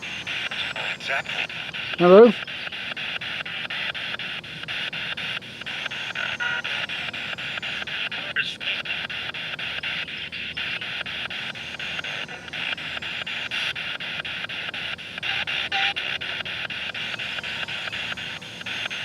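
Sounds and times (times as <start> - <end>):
radio static chopped into clicks: 0.0 - 19.0
snatches of broadcast sound: 0.0 - 19.0.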